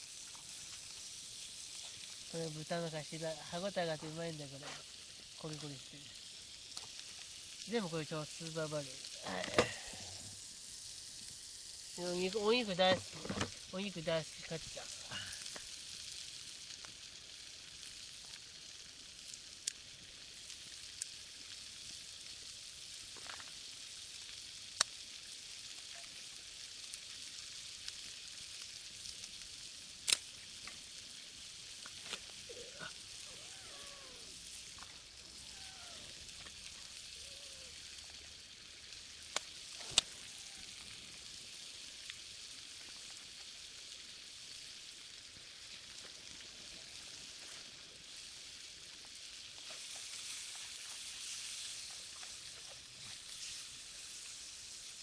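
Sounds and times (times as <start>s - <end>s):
meat sizzling in a frying pan: 0.0s - 55.0s
sharp pops of frying: 0.0s - 55.0s.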